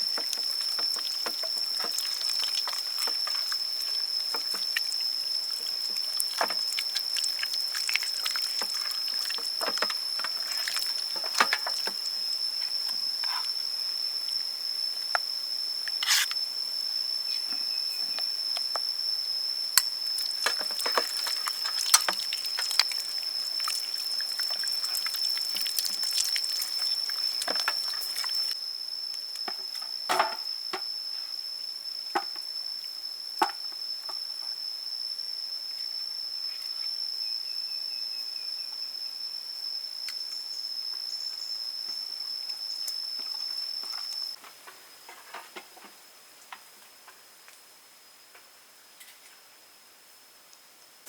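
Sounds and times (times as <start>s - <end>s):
watery food preparation sounds: 0.0s - 14.5s, 19.7s - 28.6s
high-pitched insect drone: 0.0s - 45.1s.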